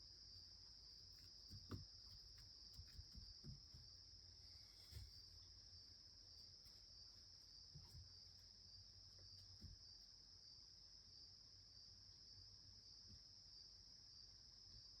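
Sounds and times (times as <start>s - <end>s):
soft low thumps: 1.3s - 4.2s.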